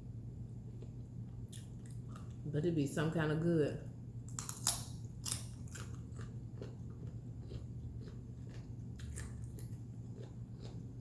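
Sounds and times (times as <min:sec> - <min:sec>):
person crunching and chewing: 0:04.3 - 0:11.0.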